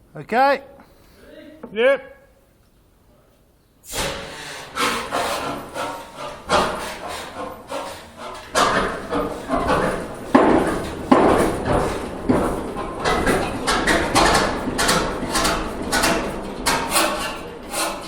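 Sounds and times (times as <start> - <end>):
diesel engine starting up: 3.9 - 18.0.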